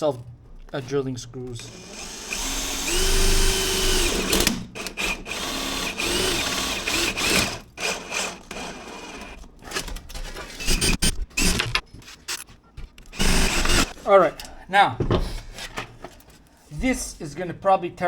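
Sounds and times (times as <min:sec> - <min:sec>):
power drill motor whine: 0:01.6 - 0:09.4, 0:10.6 - 0:11.6, 0:13.1 - 0:14.0
sharp clicks and knocks: 0:09.7 - 0:15.2.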